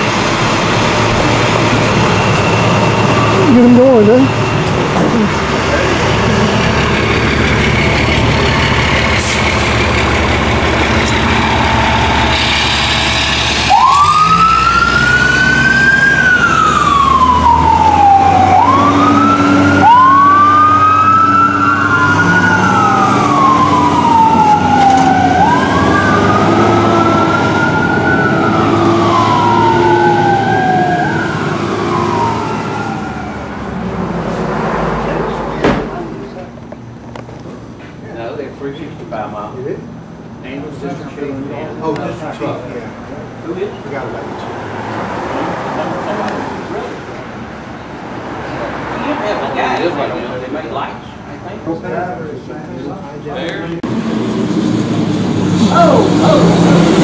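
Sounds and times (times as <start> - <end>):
heavy truck engine running: 0.0 - 38.0, 53.6 - 57.0
siren wailing: 1.2 - 6.2, 10.4 - 33.8.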